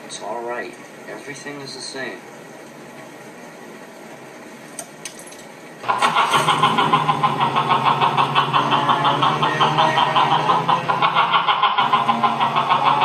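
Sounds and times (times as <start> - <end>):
car engine starting and running: 4.2 - 13.0.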